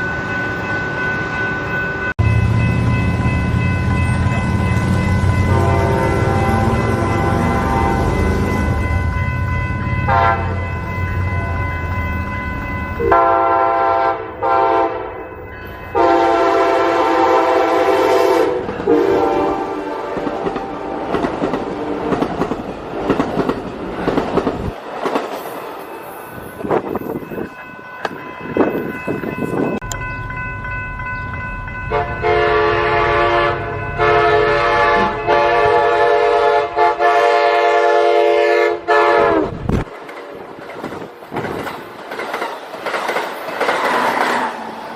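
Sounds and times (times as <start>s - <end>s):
train rumbling and clattering on rails: 0.0s - 44.9s
train air horn blasts: 5.5s - 8.4s, 10.1s - 10.7s, 13.0s - 15.2s, 15.9s - 21.1s, 31.9s - 39.6s.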